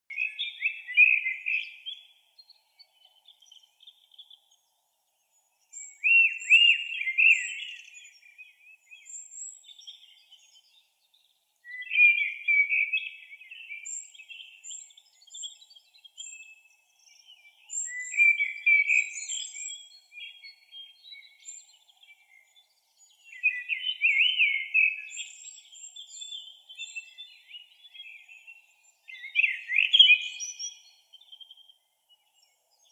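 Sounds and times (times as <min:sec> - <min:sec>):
songbird warbling: 0:05.9 - 0:08.0, 0:29.1 - 0:30.8.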